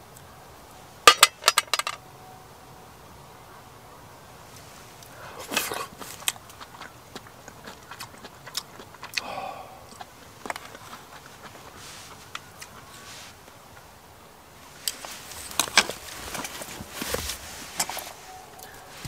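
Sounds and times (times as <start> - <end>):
person chewing: 5.0 - 13.0.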